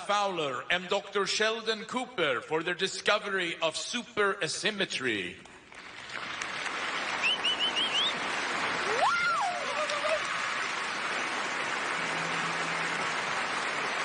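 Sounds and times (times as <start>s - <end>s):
audience applauding: 5.7s - 14.0s
short high whistles: 7.2s - 8.2s
person cheering: 8.8s - 10.6s.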